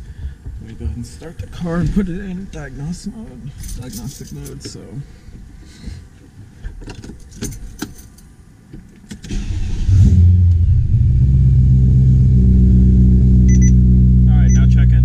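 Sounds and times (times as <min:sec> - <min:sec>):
car engine starting and idling: 0:09.2 - 0:15.0.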